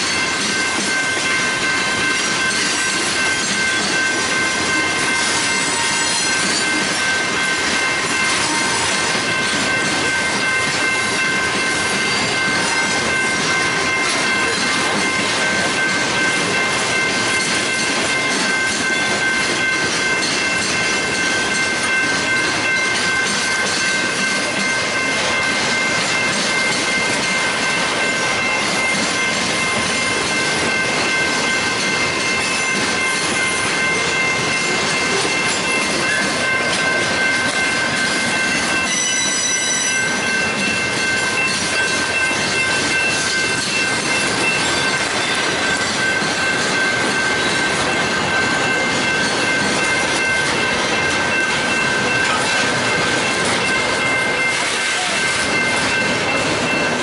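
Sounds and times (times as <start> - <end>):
high-pitched wheel squeal: 38.9 - 40.1.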